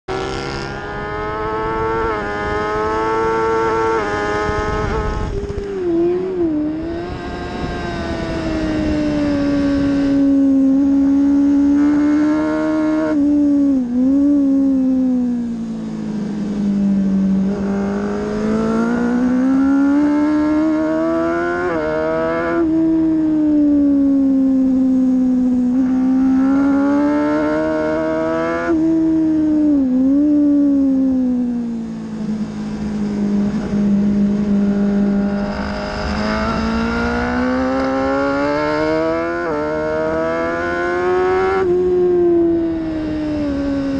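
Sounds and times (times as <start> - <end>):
motorcycle engine revving: 0.0 - 43.9
wind rush: 1.4 - 12.3, 31.9 - 39.2.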